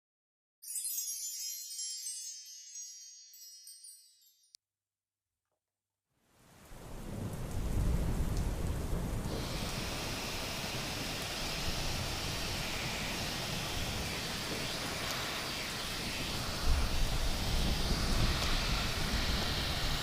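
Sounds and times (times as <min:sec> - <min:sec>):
rain hiss: 0:06.2 - 0:20.0
rolling thunder rumble: 0:06.8 - 0:15.0
higher hiss: 0:09.3 - 0:20.0.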